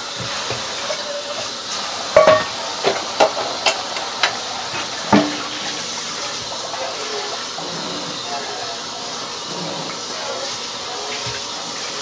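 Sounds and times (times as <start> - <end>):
running tap water: 0.0 - 12.0
dishes clinking in a sink: 2.1 - 7.4.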